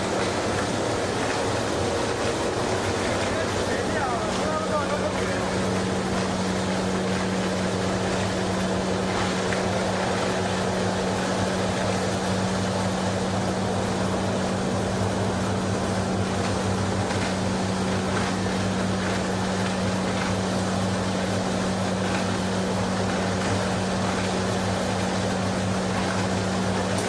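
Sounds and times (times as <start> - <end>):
churning water rush: 0.0 - 27.0
washing machine motor hum: 0.0 - 27.0.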